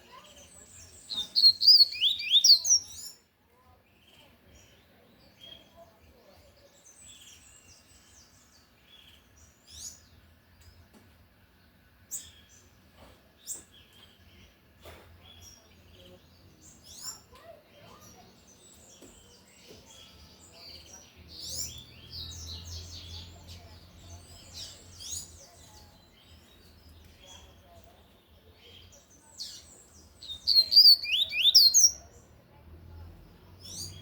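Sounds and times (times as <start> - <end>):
bird singing high chirps: 0.1 - 3.3, 28.4 - 32.2, 33.6 - 34.0.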